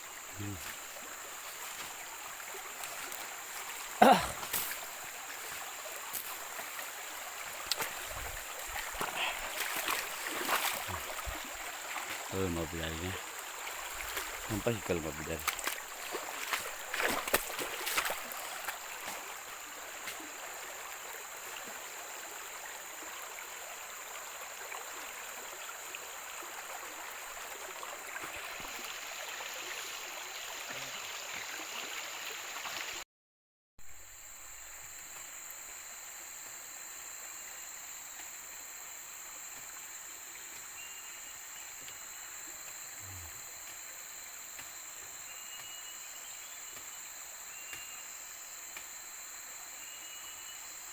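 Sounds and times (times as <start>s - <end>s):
insect drone: 0.0s - 33.0s, 33.8s - 50.9s
running water rushing: 0.0s - 33.0s.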